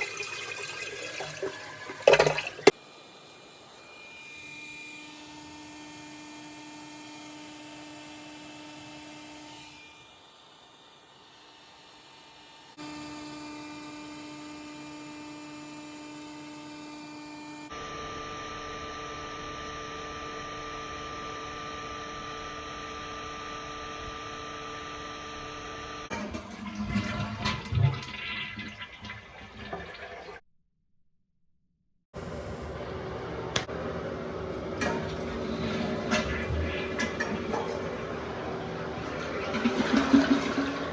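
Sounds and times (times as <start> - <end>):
toilet flushing: 0.0 - 2.8, 26.1 - 30.4, 32.8 - 40.9.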